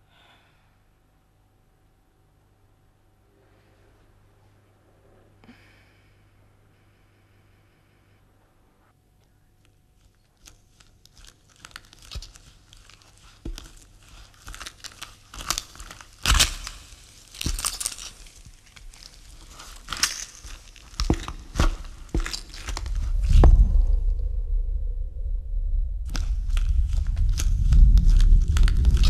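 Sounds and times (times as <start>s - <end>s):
crackling and rustling: 9.2s - 24.3s, 26.0s - 29.0s
low rumble: 22.7s - 29.0s.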